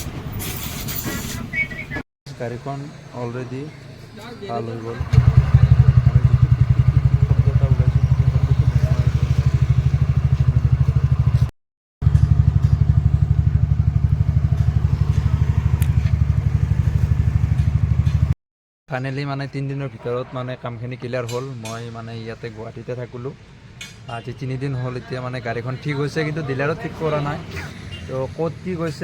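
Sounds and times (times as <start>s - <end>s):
scooter engine running: 5.0s - 18.3s.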